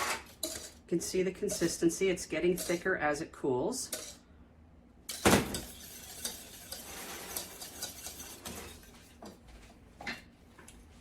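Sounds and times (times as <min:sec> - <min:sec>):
whisk scraping in pot: 0:00.0 - 0:02.9, 0:05.1 - 0:09.4
whisk knocking pot: 0:05.1 - 0:09.4.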